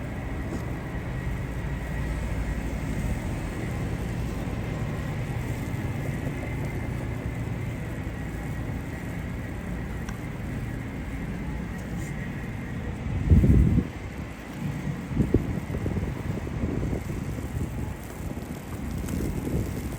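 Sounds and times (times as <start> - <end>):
road traffic rumble: 0.0 - 19.9.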